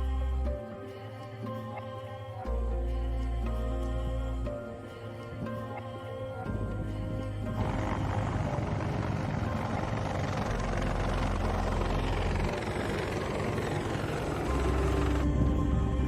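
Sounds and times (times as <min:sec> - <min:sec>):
helicopter rotor chop: 0:07.6 - 0:15.3.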